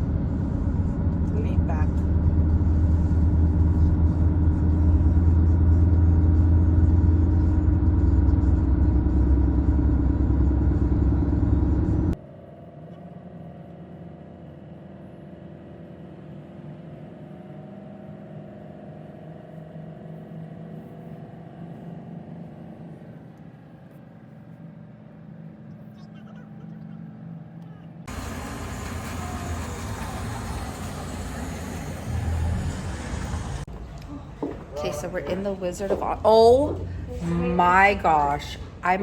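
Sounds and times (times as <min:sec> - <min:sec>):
car road rumble from inside: 0:00.0 - 0:12.2, 0:27.7 - 0:39.0.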